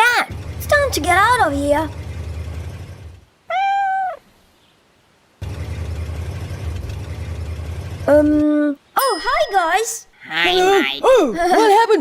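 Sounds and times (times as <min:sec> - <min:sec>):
low steady rumble: 0:00.0 - 0:03.4, 0:05.4 - 0:08.6
cartoon cat meow: 0:03.5 - 0:04.2.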